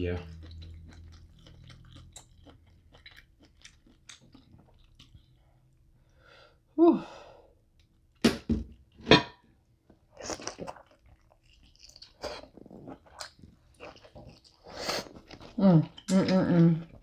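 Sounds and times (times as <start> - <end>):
chewing with sharp smacks: 0.2 - 5.8, 10.2 - 16.2.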